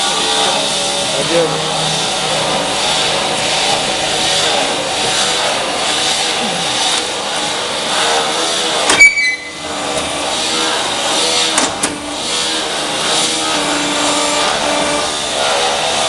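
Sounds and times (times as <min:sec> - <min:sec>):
machine steady mechanical noise: 0:00.0 - 0:16.0.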